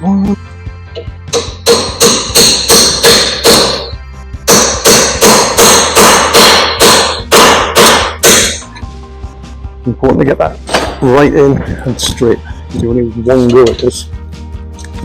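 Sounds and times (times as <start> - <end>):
hammer striking metal: 1.0 - 8.8, 10.6 - 11.0, 13.4 - 14.0.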